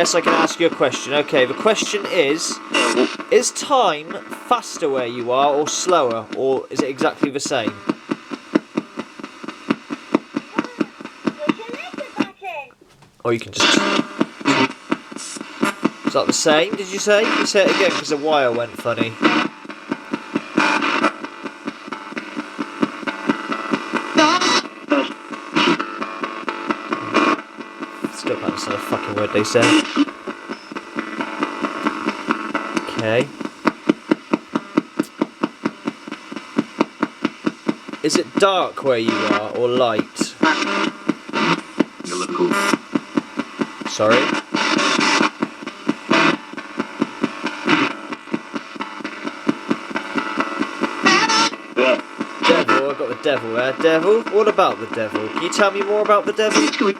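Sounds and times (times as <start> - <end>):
garbled broadcast voice: 0.0 - 7.9, 10.5 - 15.4, 16.1 - 19.3, 28.0 - 30.1, 32.8 - 33.5, 38.0 - 40.7, 42.0 - 42.8, 43.7 - 44.4, 51.0 - 56.9
radio static: 0.0 - 56.9.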